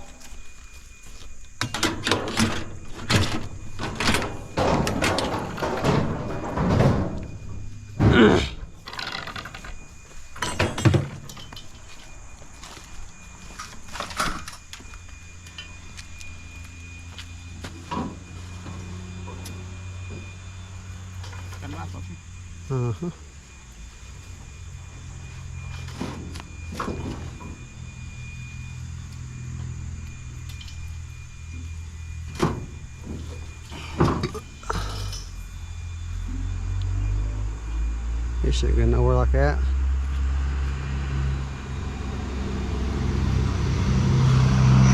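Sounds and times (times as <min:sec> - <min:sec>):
scrap metal knocks: 0:01.6 - 0:09.8.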